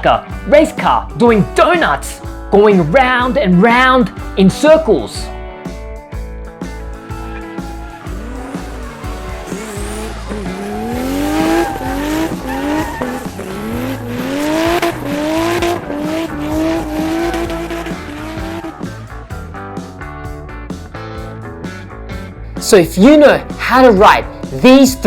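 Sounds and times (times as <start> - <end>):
background music: 0.0 - 25.0
tyres screeching: 7.0 - 19.2
race car engine revving: 7.2 - 19.4.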